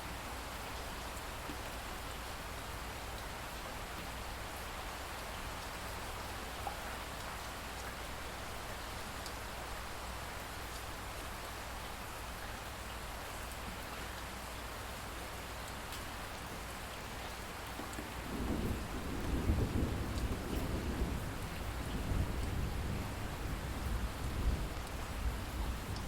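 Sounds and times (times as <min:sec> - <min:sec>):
rain falling: 0:00.0 - 0:26.0
rolling thunder: 0:18.2 - 0:25.9.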